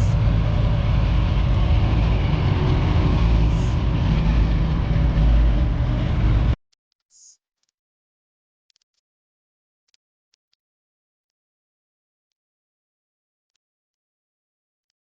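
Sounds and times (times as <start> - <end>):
loud low vehicle engine rumble: 0.0 - 6.6.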